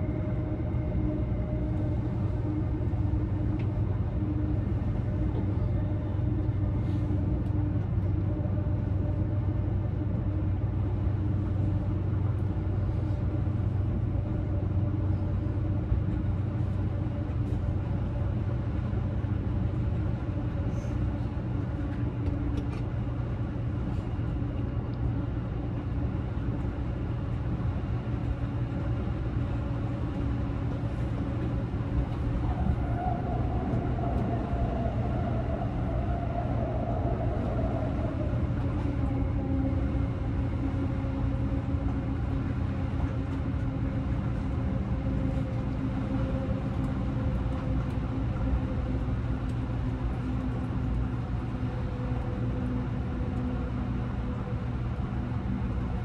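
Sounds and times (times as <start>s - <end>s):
train interior hum and rumble: 0.0s - 56.0s.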